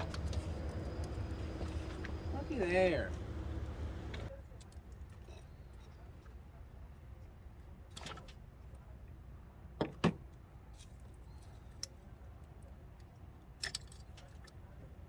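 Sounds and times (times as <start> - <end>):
low steady rumble: 0.0 - 4.4.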